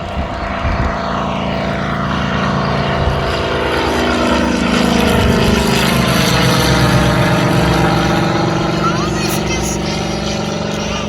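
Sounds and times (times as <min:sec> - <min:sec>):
radial aircraft engine droning: 0:00.0 - 0:11.0.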